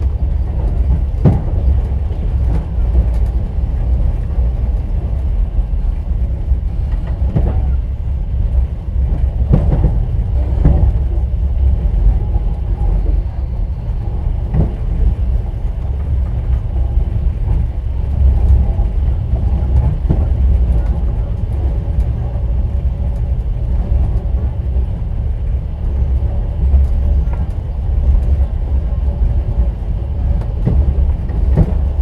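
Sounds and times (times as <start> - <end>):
train wheels rumbling on rails: 0.0 - 32.0
wheel clatter knocks: 25.9 - 32.0.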